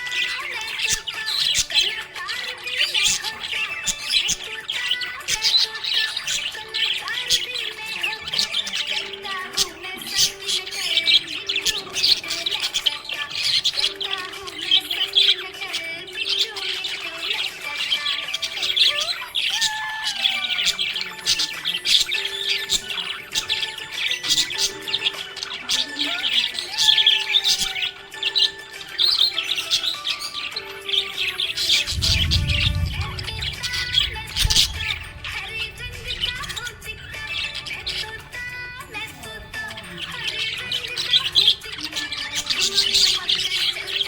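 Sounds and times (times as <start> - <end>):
background music with held notes: 0.0 - 44.0
budgies chirping and warbling: 0.0 - 44.0
low rumble: 31.7 - 38.1
steady low tone: 31.8 - 37.3.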